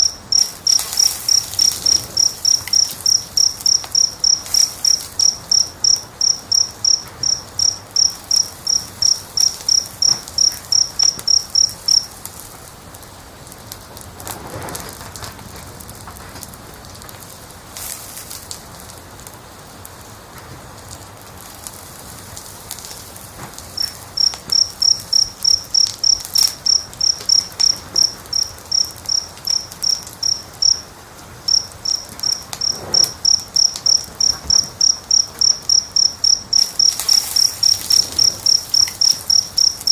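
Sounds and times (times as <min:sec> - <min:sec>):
cricket chirping: 0:00.0 - 0:12.2, 0:23.7 - 0:39.9
wood fire crackling and popping: 0:00.0 - 0:39.9.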